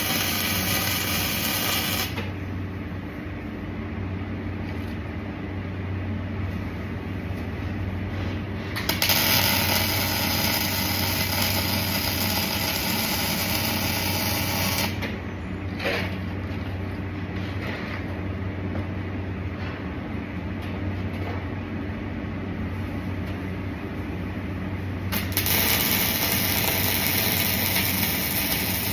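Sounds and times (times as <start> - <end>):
welding arc hissing: 0.0 - 2.2, 8.8 - 15.0, 25.1 - 28.9
electrical hum: 0.0 - 28.9.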